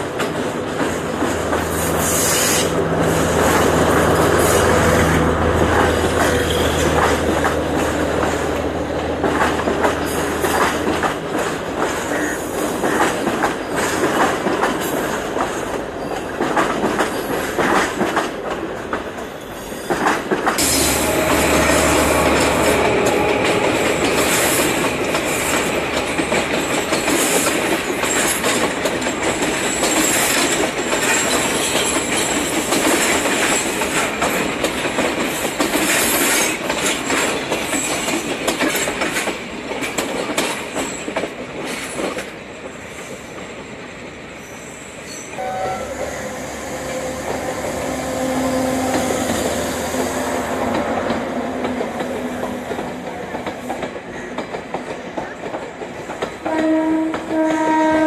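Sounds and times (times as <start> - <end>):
passenger train passing: 0.0 - 58.0
train horn blast: 4.2 - 7.9, 20.6 - 25.8, 45.4 - 51.5, 56.4 - 58.0.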